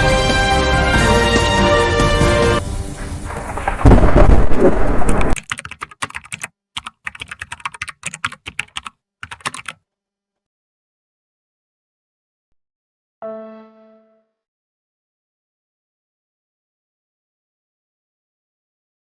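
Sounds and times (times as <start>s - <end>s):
rain hiss: 2.2s - 5.4s
low rumble of thunder: 2.8s - 5.4s
computer keyboard typing: 5.4s - 9.8s.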